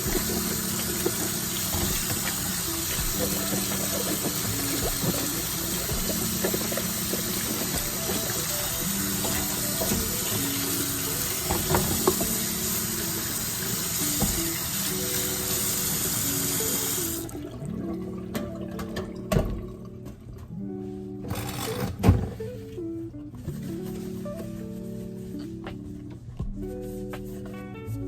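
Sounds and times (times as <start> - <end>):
tap running over vegetables: 0.0 - 16.4
knocks in sink: 18.4 - 19.7.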